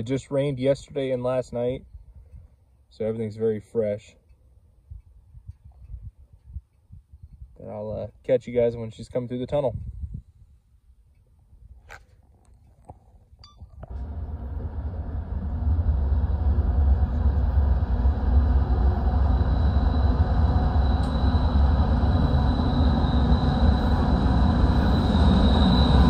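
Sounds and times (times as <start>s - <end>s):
locomotive engine rumble: 13.8s - 26.0s
high wheel squeal: 17.8s - 26.0s.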